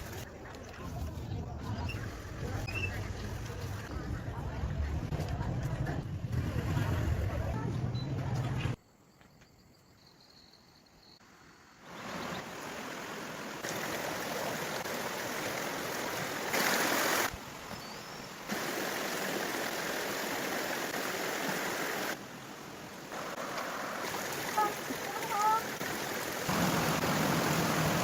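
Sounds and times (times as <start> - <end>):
flowing water rushing: 11.9 - 28.0.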